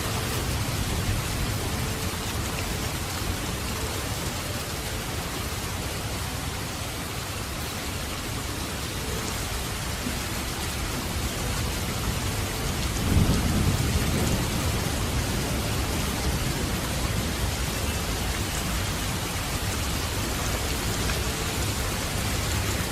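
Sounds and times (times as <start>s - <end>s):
rain hissing: 0.0s - 22.9s
thunder rolling: 12.8s - 17.3s.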